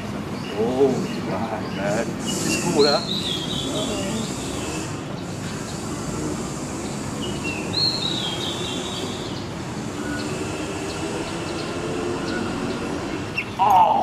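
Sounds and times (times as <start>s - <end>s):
low rumbling background noise: 0.0s - 14.0s
bird high whistling call: 2.2s - 4.9s, 7.2s - 9.4s.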